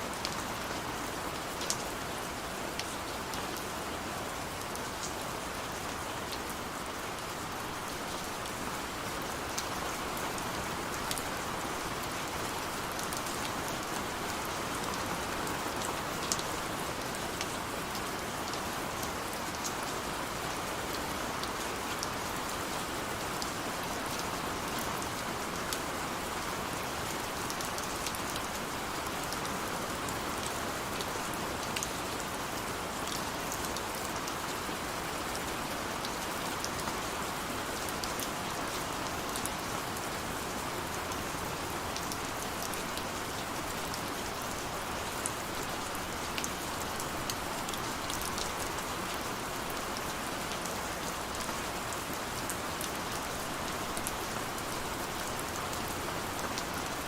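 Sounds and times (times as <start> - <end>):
steady rain hissing: 0.0 - 57.0.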